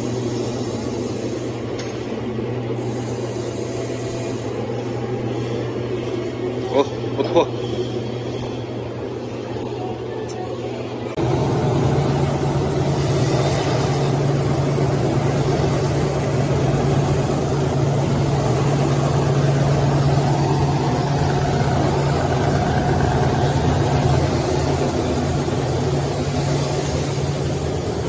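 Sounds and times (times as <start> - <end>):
wood sanding machine running: 11.2 - 28.0.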